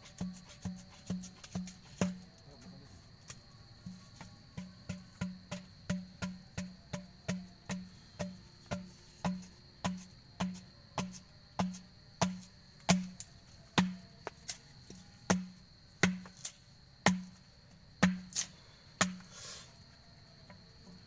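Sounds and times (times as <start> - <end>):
high insect drone: 0.0 - 21.0.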